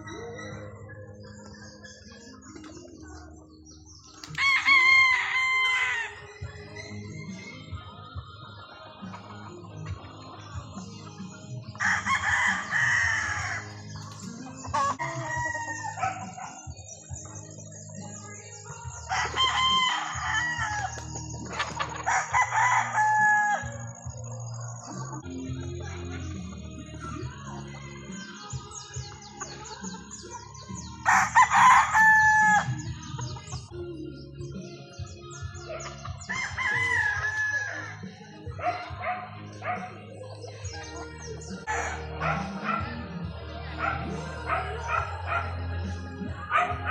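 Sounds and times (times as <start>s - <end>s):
high chirping: 0.0s - 46.9s
roosters crowing: 0.0s - 46.9s
rooster crowing: 19.1s - 21.0s, 22.0s - 23.9s, 31.1s - 32.9s, 36.2s - 38.1s.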